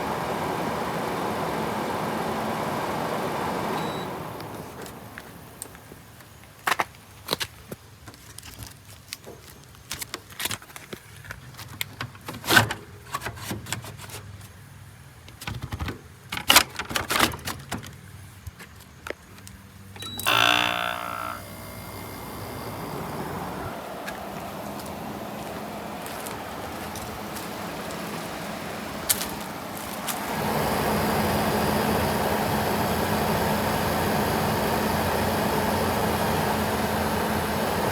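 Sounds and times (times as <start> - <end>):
air conditioner running: 0.0 - 6.2, 20.0 - 37.9.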